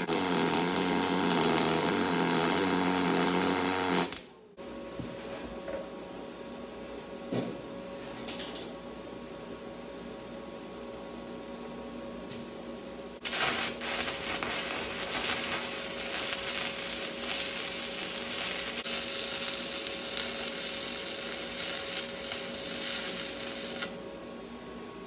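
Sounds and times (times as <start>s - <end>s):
welding arc hissing and crackling: 0.0s - 4.3s, 13.2s - 24.0s.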